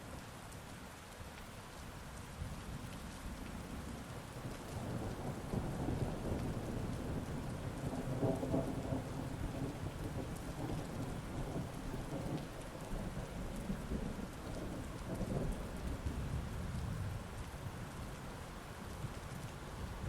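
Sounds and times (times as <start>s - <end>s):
heavy rain falling: 0.0s - 20.0s
thunder rumbling: 4.8s - 17.3s.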